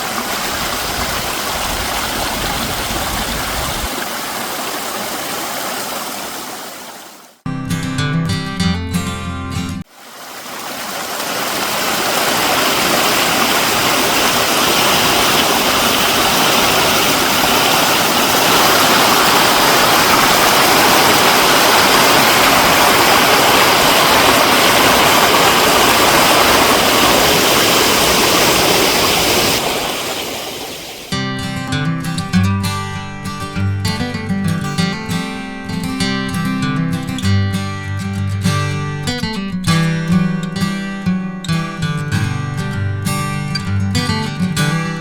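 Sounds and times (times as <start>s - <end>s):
stream rushing: 0.0s - 7.4s, 9.9s - 31.2s.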